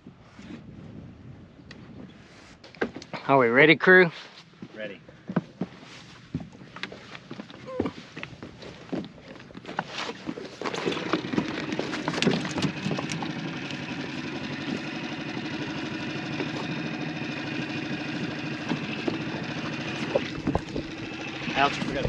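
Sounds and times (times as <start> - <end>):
outboard motor starting and running: 6.5 - 22.0
knocks and clatter: 18.4 - 22.0.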